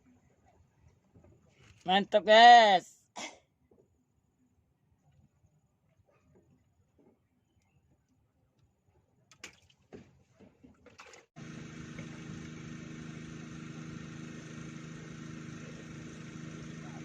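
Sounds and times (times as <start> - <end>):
small engine running steadily: 11.4 - 17.0.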